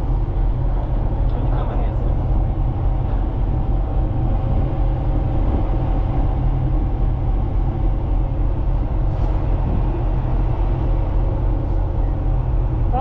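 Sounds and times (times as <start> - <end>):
ship machinery low rumble: 0.0 - 13.0.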